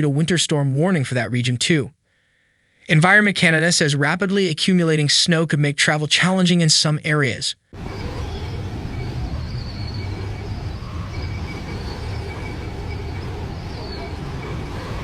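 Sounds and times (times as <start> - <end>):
faint high tone: 7.8 - 15.0
low vehicle rumble: 7.8 - 15.0.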